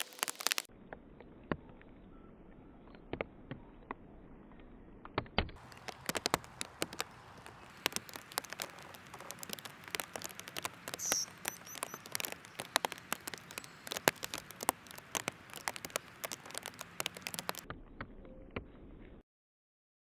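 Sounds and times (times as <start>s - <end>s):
bird chirp: 5.6s - 17.6s
birds pecking at seed: 5.6s - 17.7s.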